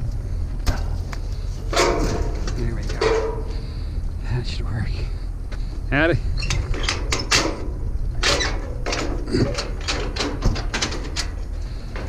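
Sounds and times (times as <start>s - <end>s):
scrap metal clicks and rattles: 0.6s - 3.8s, 6.4s - 12.0s.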